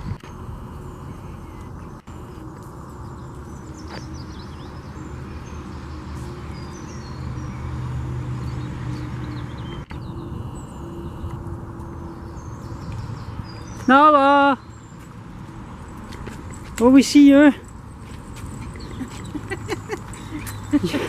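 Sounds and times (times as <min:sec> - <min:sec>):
low hum: 0:00.0 - 0:07.6, 0:08.4 - 0:13.9
small birds chirping: 0:00.0 - 0:21.0
steady low rumble: 0:09.4 - 0:13.8.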